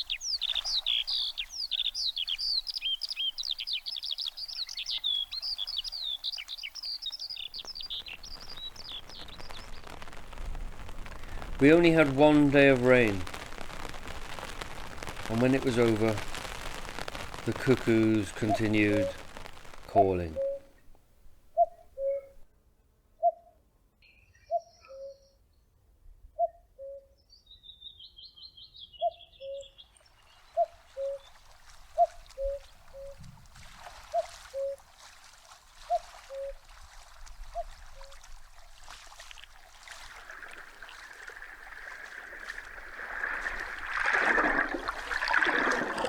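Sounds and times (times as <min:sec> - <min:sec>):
running water: 0:00.0 - 0:20.4, 0:30.0 - 0:46.0
cuckoo calling: 0:17.5 - 0:19.2, 0:19.9 - 0:20.8, 0:21.5 - 0:22.4, 0:23.2 - 0:23.5, 0:24.3 - 0:25.3, 0:26.4 - 0:27.2, 0:29.0 - 0:29.8, 0:30.5 - 0:33.3, 0:34.0 - 0:34.9, 0:35.8 - 0:36.7, 0:37.3 - 0:38.3.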